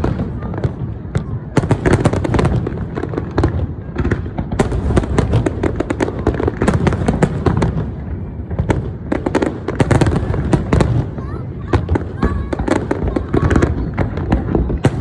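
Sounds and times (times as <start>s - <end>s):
fireworks cracking and popping: 0.0s - 15.0s
low rumble of fireworks booms: 0.0s - 15.0s.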